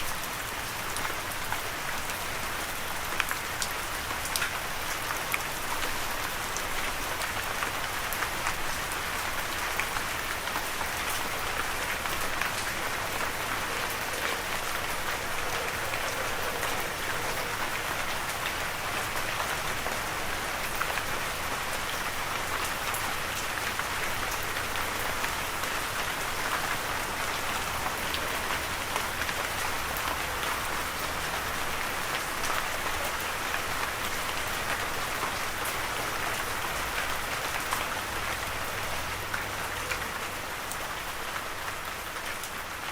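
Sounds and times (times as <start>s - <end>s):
rain pattering: 0.0s - 42.9s.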